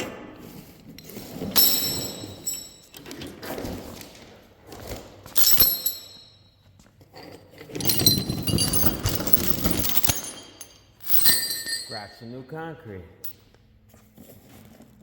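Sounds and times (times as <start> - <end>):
metal parts clinking and rattling: 0.9 - 12.5.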